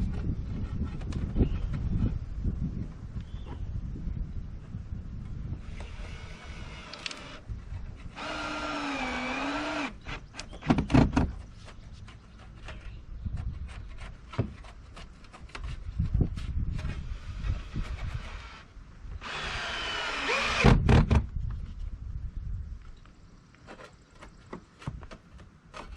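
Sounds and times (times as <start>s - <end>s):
power drill motor running: 5.6s - 7.4s, 8.2s - 10.1s, 19.2s - 20.7s.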